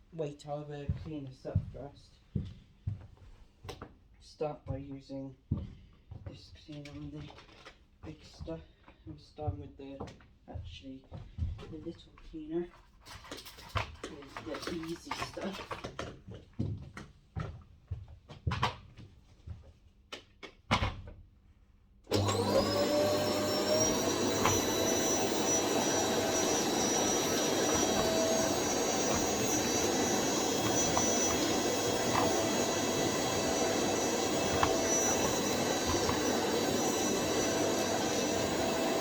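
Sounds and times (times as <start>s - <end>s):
vacuum cleaner motor whine: 22.1s - 39.0s.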